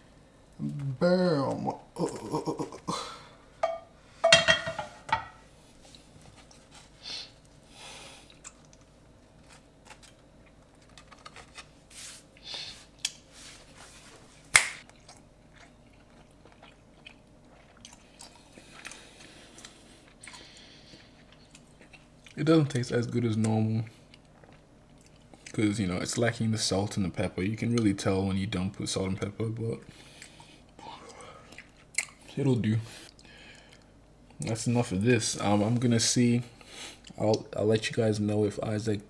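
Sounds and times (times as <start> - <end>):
person chewing food: 8.1 - 11.4, 14.8 - 22.4, 24.0 - 25.6, 30.0 - 32.3.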